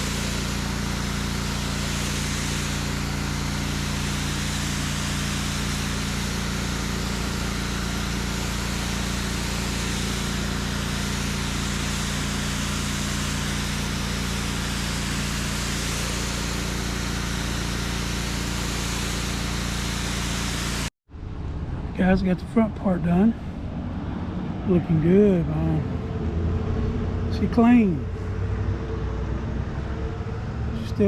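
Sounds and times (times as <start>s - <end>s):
water spray hiss: 0.0s - 20.9s
pressure washer engine hum: 0.0s - 31.0s.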